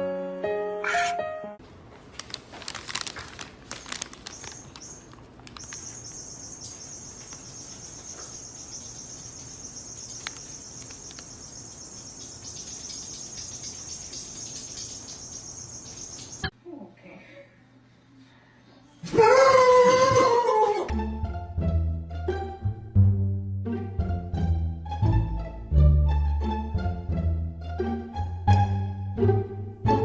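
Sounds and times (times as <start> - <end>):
clicks and rustles: 1.9 - 6.1, 10.0 - 11.4
high-pitched insect chirring: 4.2 - 16.5.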